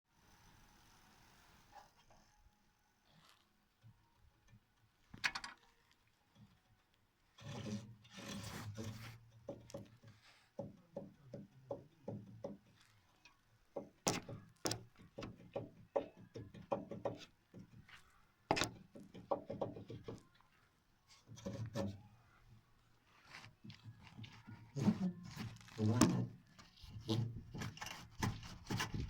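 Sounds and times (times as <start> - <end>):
rubbing creak: 7.3 - 10.2, 23.1 - 29.0.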